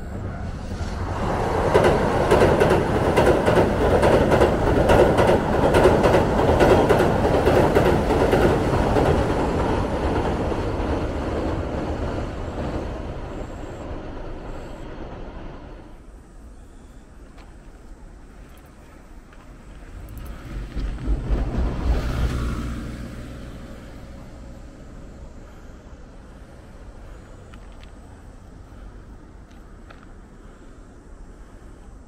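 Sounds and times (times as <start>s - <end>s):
train rumbling over steel bridge: 0.0s - 32.0s
train wheel clacks: 1.2s - 14.6s.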